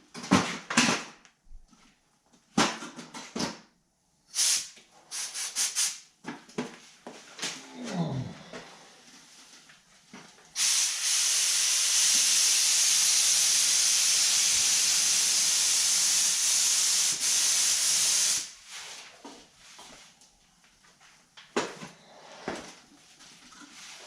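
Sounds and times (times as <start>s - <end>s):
paint spray gun hissing: 4.4s - 6.0s, 10.6s - 18.6s.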